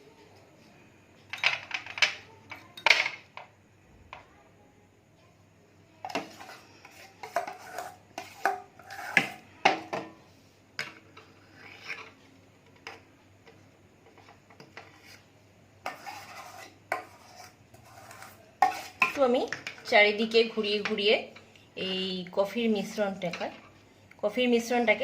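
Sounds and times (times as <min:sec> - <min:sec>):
metal spoon scraping glass dish: 0:06.3 - 0:09.4, 0:11.3 - 0:12.2, 0:15.8 - 0:19.2.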